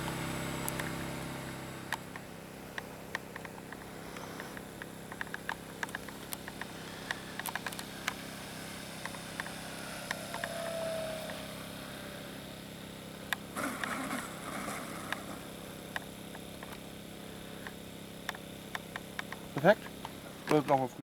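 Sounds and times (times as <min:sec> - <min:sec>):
sharp clicks: 0:00.0 - 0:01.0, 0:01.9 - 0:12.4, 0:15.9 - 0:16.9, 0:17.6 - 0:20.8
model airplane motor whining: 0:00.0 - 0:20.9
steady low hum: 0:00.0 - 0:21.0.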